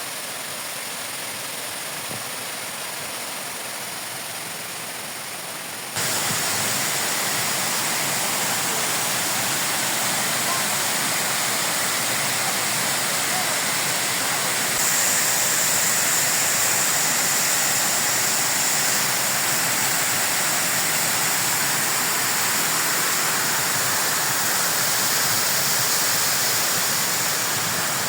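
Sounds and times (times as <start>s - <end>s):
waterfall rushing: 6.0s - 28.0s.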